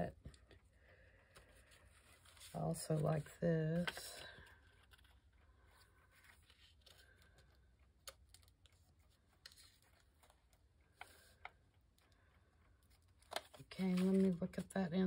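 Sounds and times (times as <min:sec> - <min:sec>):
faint paper clicks: 0:03.8 - 0:14.3.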